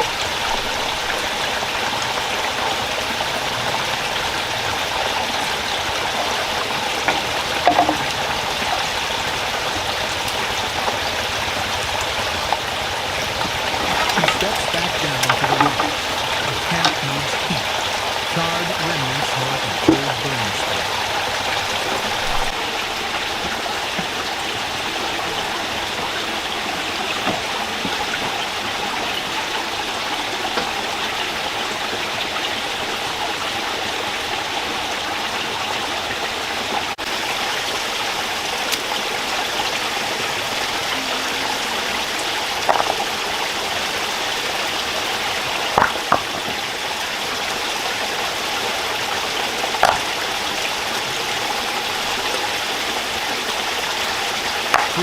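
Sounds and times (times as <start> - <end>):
stream rushing over stones: 0.0 - 55.0
sharp knocks: 7.1 - 8.2.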